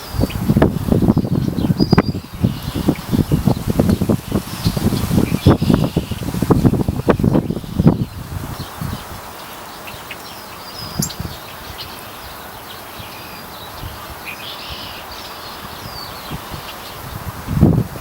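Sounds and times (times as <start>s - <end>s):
small birds chirping: 0.0s - 17.3s
outdoor background hiss: 0.0s - 18.0s.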